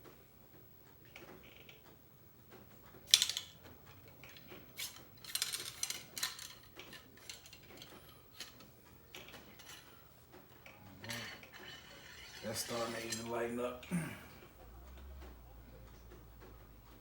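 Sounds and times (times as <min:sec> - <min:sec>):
patch scraping in barrel: 0:10.9 - 0:13.4.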